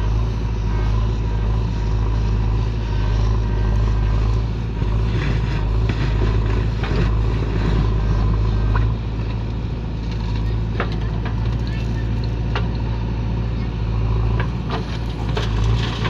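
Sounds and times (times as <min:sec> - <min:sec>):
diesel machinery engine running: 0:00.0 - 0:16.0.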